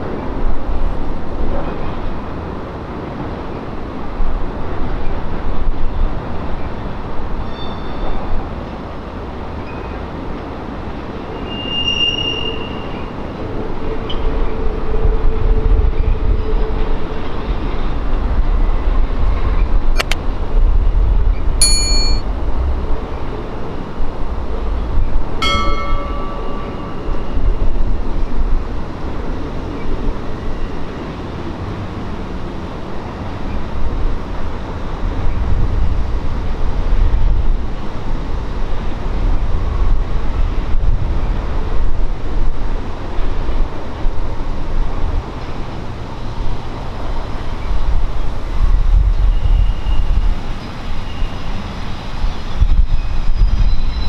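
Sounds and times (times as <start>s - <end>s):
freight train rumbling past: 0.0s - 21.6s, 22.3s - 54.0s
high-pitched wheel squeals: 11.4s - 13.1s.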